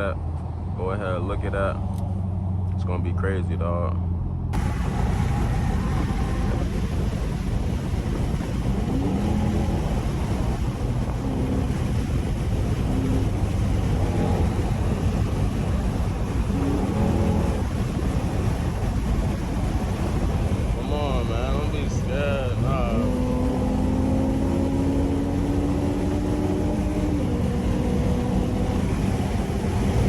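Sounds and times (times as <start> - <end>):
wind and road noise: 0.0 - 30.0
car exhaust revving: 1.0 - 30.0.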